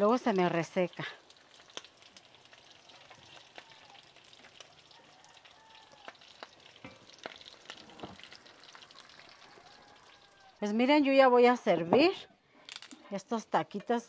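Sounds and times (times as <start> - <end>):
oil popping: 0.0 - 10.2
food frying in hot oil: 0.0 - 11.4.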